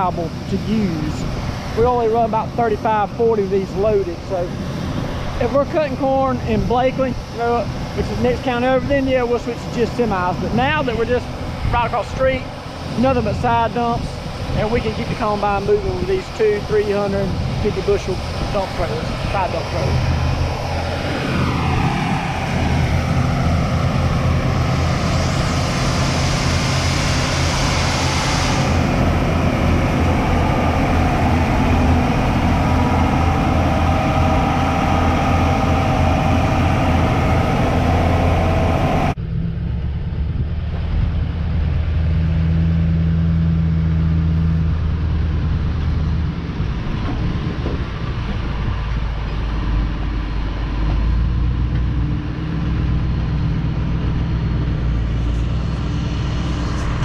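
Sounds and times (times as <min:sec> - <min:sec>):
heavy vehicle engine running: 0:00.0 - 0:57.0
air hissing: 0:24.1 - 0:30.4.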